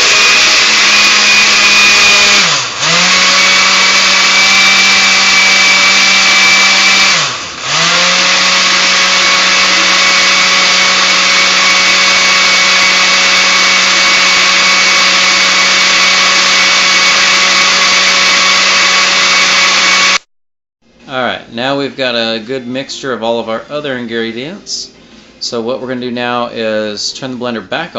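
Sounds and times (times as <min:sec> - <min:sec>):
blender whining: 0:00.0 - 0:20.3.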